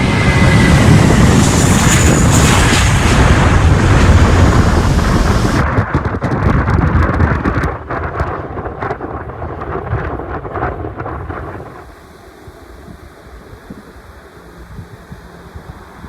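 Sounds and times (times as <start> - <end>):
airliner engine rushing hiss: 0.0 - 5.6, 11.6 - 16.0
wind buffeting microphone: 0.0 - 16.0.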